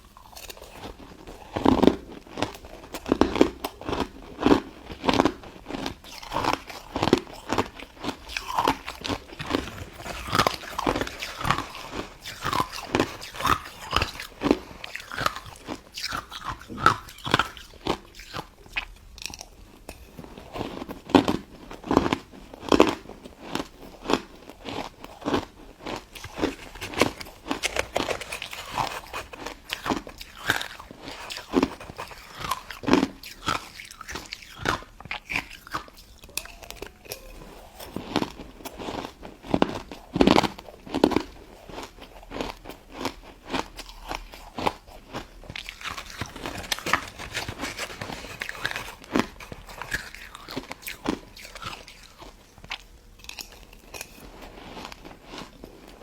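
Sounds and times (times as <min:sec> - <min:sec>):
chewing crunchy ice: 0:00.0 - 0:56.0.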